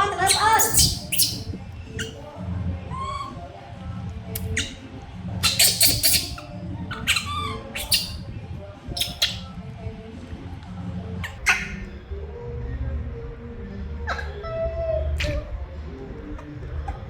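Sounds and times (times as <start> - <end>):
monkey squealing and whimpering: 0.0 - 2.2, 2.9 - 3.4, 4.4 - 4.8, 5.4 - 8.2, 9.0 - 9.4, 11.2 - 11.8, 14.1 - 15.5.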